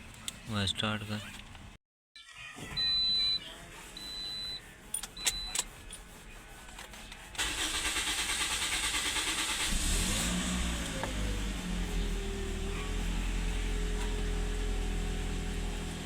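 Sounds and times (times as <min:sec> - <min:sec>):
starter motor cranking: 0:07.4 - 0:11.4
car engine running: 0:07.4 - 0:16.0.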